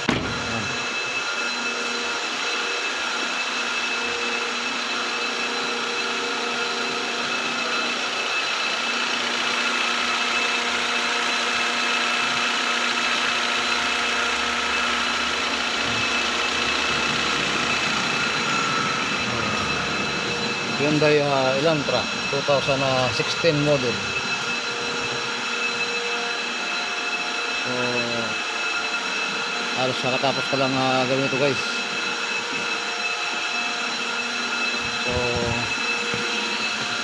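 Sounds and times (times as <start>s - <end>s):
steady whine: 0.0s - 37.0s
car engine idling: 6.9s - 24.9s, 34.7s - 37.0s.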